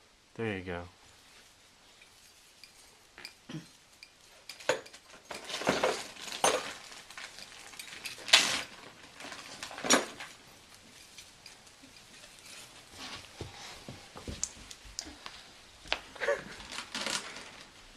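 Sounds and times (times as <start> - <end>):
ornaments clinking and clattering: 1.0 - 14.9.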